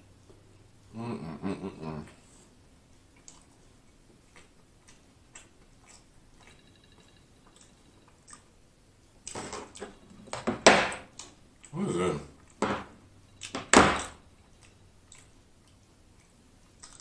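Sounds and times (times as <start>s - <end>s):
crunching and chewing fried chicken: 1.4s - 17.0s
wet mouth clicks: 3.1s - 6.6s, 14.5s - 17.0s.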